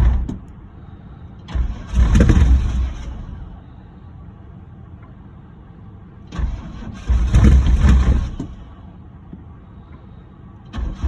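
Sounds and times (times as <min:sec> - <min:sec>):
car engine cranking on starter: 0:01.4 - 0:03.6, 0:06.2 - 0:08.8, 0:10.6 - 0:11.0.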